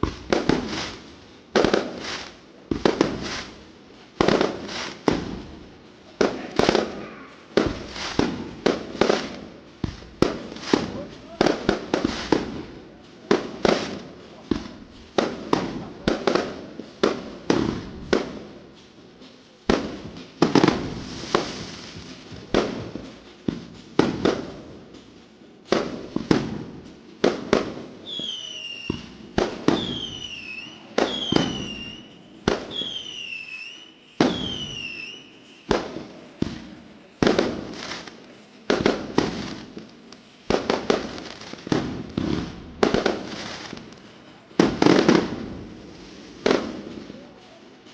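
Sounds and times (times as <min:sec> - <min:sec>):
fireworks banging: 0:00.0 - 0:47.9
falling firework whistle: 0:28.0 - 0:36.0.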